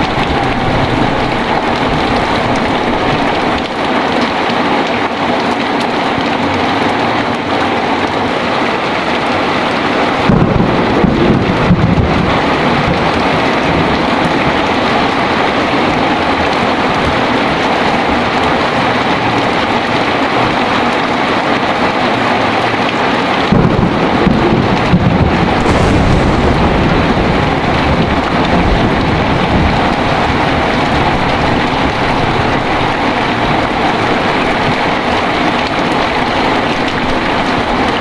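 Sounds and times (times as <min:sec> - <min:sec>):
thunder crack and rumble: 0:00.0 - 0:04.3, 0:10.0 - 0:20.0, 0:23.3 - 0:38.0
heavy rain falling: 0:00.0 - 0:38.0.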